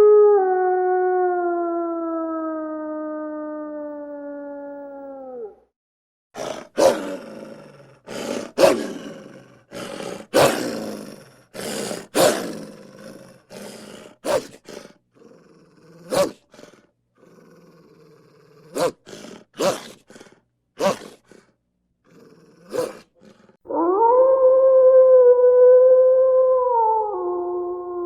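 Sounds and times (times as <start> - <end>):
wolf howl: 0.0 - 5.7, 22.1 - 28.0
wolf growling barks: 6.4 - 23.6.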